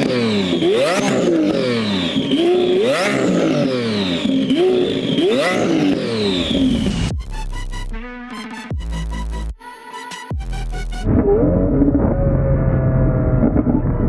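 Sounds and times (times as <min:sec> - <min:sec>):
car engine accelerating hard: 0:00.0 - 0:07.2, 0:11.0 - 0:14.0
electronic music: 0:05.2 - 0:12.7.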